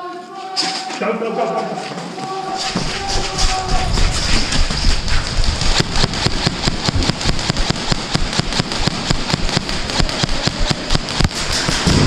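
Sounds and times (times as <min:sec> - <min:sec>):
airsoft guns firing: 0:02.6 - 0:12.0.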